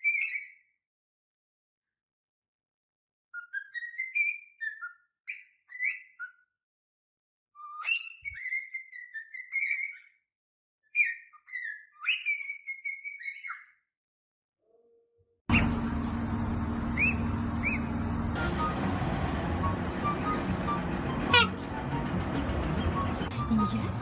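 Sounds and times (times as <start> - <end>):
parrot whistling: 15.5 - 23.4.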